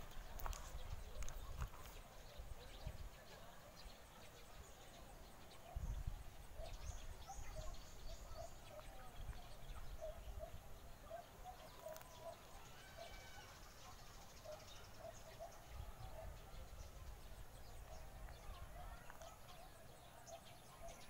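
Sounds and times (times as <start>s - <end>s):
wind rumble on microphone: 0.0s - 3.2s, 5.6s - 10.8s
birds calling: 0.0s - 21.0s.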